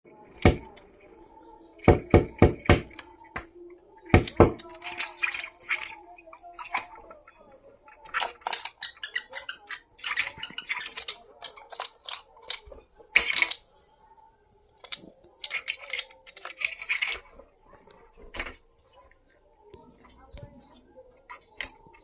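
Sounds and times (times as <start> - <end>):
woodpeckers tapping on window: 1.8 - 7.2.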